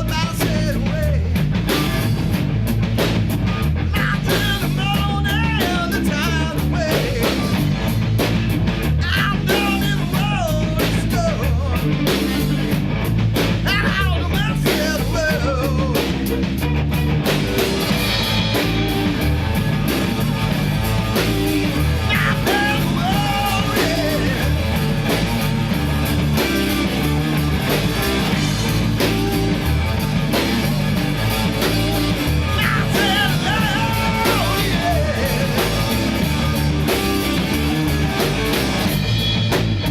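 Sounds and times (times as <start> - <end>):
rock band playing: 0.0 - 39.9
person singing: 4.0 - 7.6, 9.0 - 12.0, 13.7 - 16.2, 22.0 - 24.6, 32.5 - 36.4.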